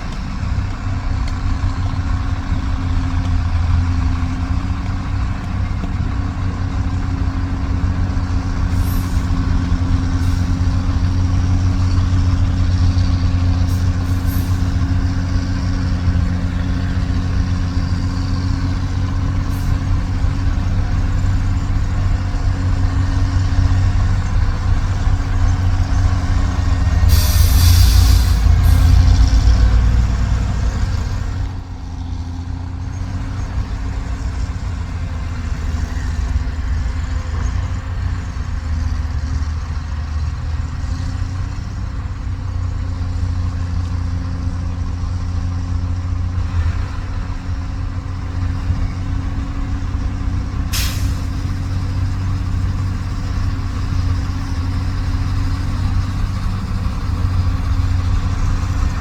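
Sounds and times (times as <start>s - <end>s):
diesel truck engine running: 0.0s - 59.0s
loud air hiss: 8.7s - 10.7s, 13.6s - 14.9s, 26.8s - 29.2s, 50.7s - 51.9s.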